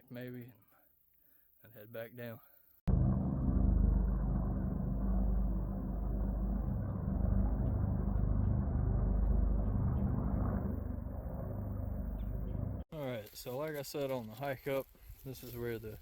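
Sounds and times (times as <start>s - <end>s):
steady low rumble: 2.9s - 12.9s.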